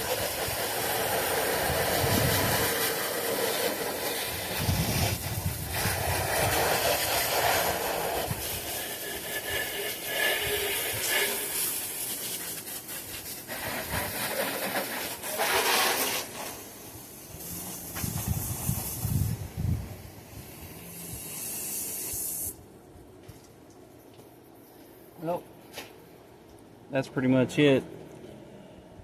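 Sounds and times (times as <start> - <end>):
spray hissing onto engine: 0.0 - 22.6.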